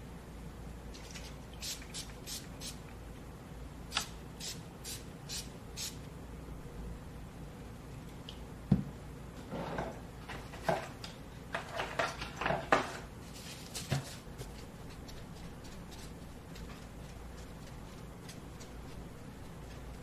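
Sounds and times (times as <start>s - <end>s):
rustling: 13.2s - 20.0s.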